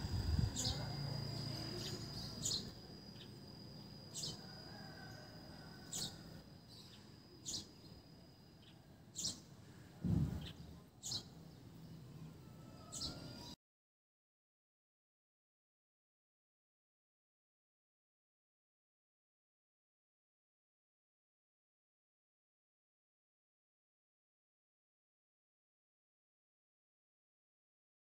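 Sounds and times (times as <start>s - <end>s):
small bird chirping: 0.0s - 5.2s, 5.8s - 8.0s, 8.6s - 9.5s, 10.3s - 13.6s
faint high-pitched tone: 0.0s - 9.9s, 12.0s - 13.6s.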